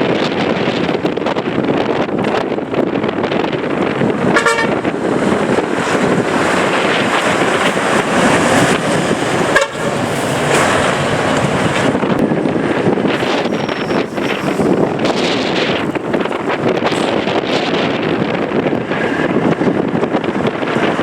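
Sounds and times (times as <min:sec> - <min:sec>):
vehicle noise: 0:00.0 - 0:21.0
wind on microphone: 0:00.0 - 0:21.0
truck horn toots: 0:04.3 - 0:04.9, 0:09.5 - 0:09.9.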